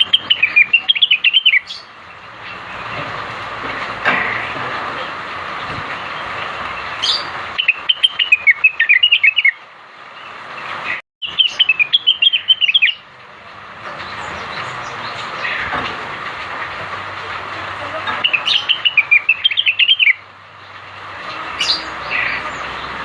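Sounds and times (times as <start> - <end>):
bird chirping high notes: 7.0 - 9.6, 11.2 - 13.0, 18.2 - 20.2.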